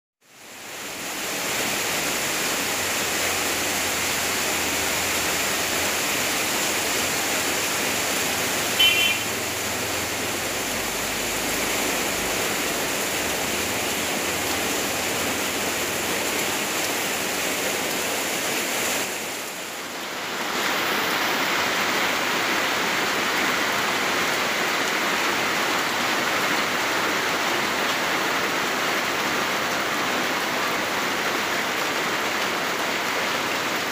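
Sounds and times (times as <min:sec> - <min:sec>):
running water: 0:00.2 - 0:23.3
rain: 0:00.2 - 0:33.9
high-pitched chirp: 0:08.8 - 0:09.3.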